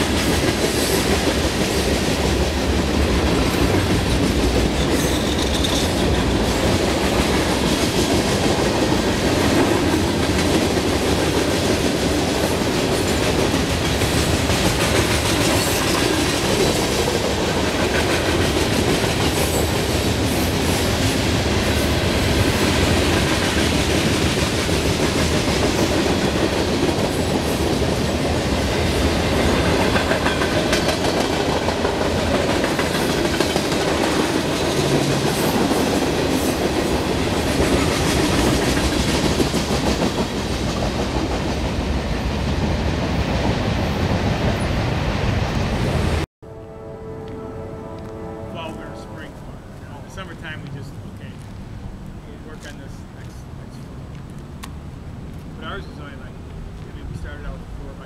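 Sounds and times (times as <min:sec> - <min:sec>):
wheels clacking over rail joints: 0:00.0 - 0:42.8
freight train rumbling past: 0:00.0 - 0:58.0.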